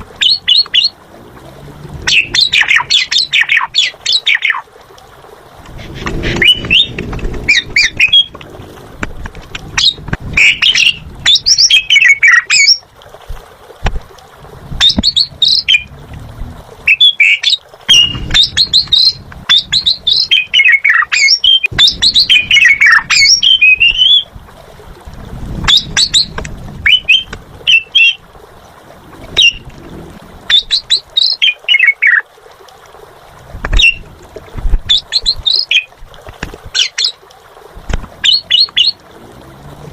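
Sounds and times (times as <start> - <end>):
starling singing: 2.0 - 4.6, 5.9 - 8.4, 9.7 - 12.8, 14.8 - 15.9, 16.9 - 24.3, 25.7 - 28.2, 30.5 - 32.2.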